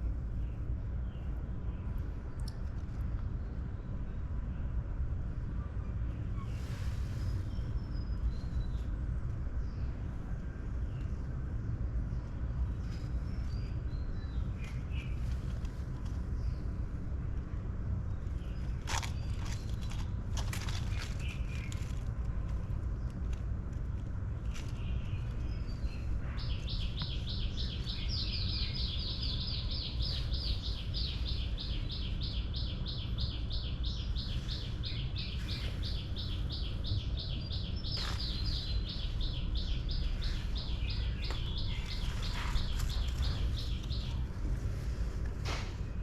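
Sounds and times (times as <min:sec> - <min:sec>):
low outdoor rumble: 0:00.0 - 0:46.0
rustles or clicks: 0:18.6 - 0:25.4.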